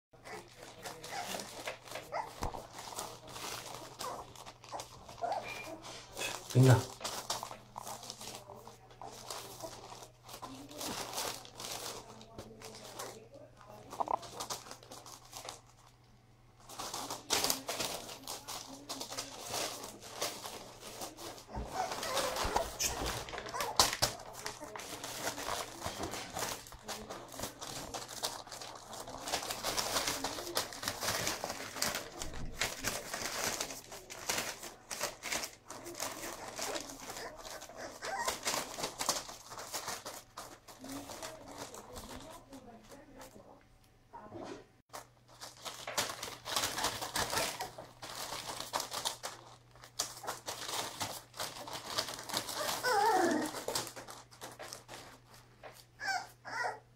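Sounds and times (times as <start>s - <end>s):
puppy whimpering: 0.2s - 3.0s, 3.7s - 5.9s, 21.1s - 25.8s, 36.0s - 39.2s, 52.3s - 54.0s, 56.0s - 56.9s
rustling and scratching: 0.2s - 16.0s, 16.6s - 43.6s, 44.2s - 56.8s.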